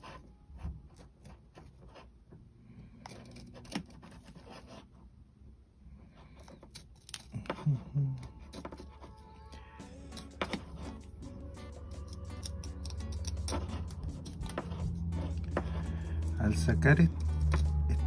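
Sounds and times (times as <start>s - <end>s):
knife scratching resin: 6.2s - 18.0s.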